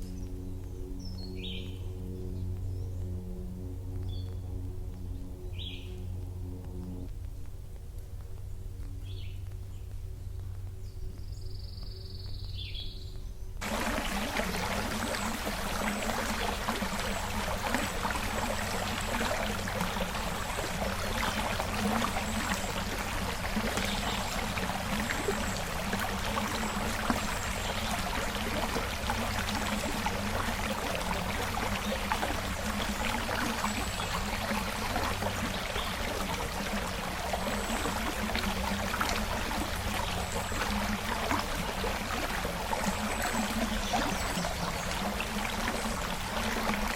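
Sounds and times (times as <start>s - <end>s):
creek water running: 13.6s - 46.9s.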